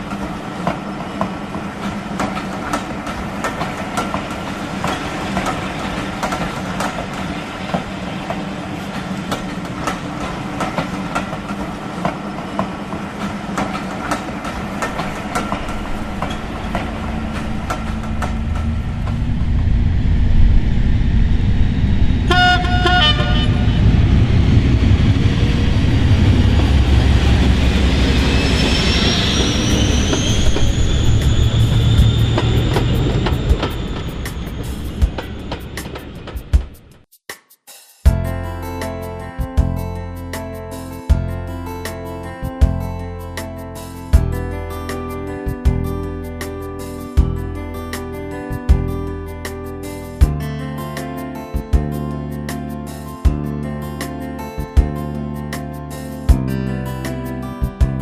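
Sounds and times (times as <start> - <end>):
wheel clicks over rail joints: 0.0 - 19.3
model locomotive engine drone: 0.0 - 36.5
rising whine: 15.0 - 36.9
locomotive horn blast: 22.2 - 24.4.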